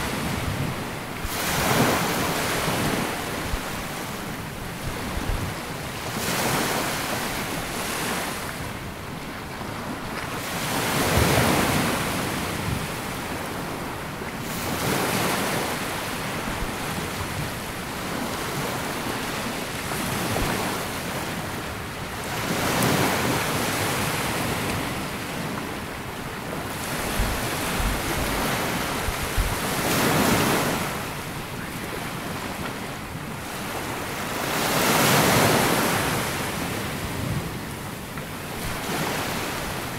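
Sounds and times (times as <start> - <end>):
wind buffeting microphone: 0.0 - 6.6, 19.8 - 34.1
small waves washing up beach: 0.0 - 39.9.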